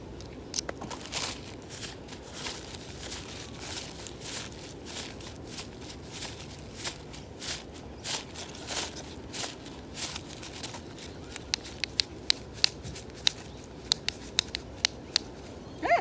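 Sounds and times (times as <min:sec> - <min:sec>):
hard objects clicking together: 0:10.3 - 0:15.5.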